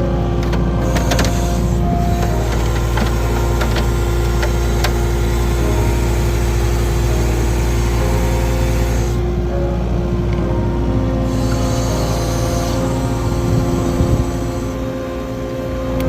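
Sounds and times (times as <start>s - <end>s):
machine engine running: 0.0s - 16.0s.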